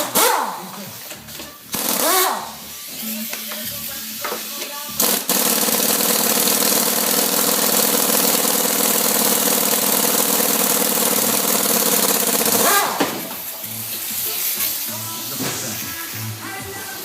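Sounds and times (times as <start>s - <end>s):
power tool rattling: 0.0s - 2.5s, 5.0s - 13.4s.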